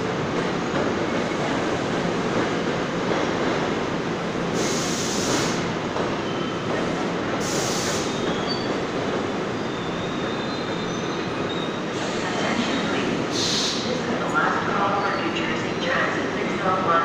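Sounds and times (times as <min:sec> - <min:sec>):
train wheels rumbling on rail: 0:00.0 - 0:17.0
brief hissing bursts: 0:04.5 - 0:05.7, 0:07.4 - 0:08.2
faint high wheel squeals: 0:09.6 - 0:11.8.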